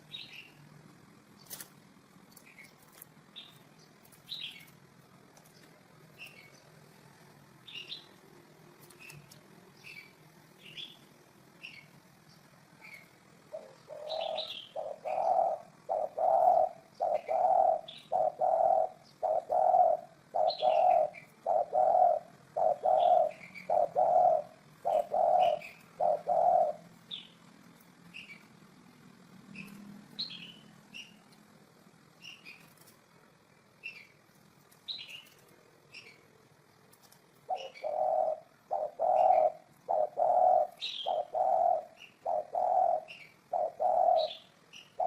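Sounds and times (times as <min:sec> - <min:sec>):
small birds chirping: 0:00.0 - 0:45.0
dove cooing: 0:12.8 - 0:27.4, 0:37.4 - 0:45.0.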